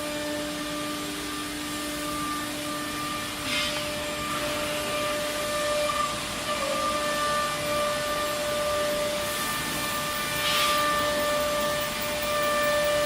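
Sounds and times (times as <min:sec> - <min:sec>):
router high whine: 0:00.0 - 0:13.0
burst of air hiss: 0:02.7 - 0:06.5, 0:09.1 - 0:13.0.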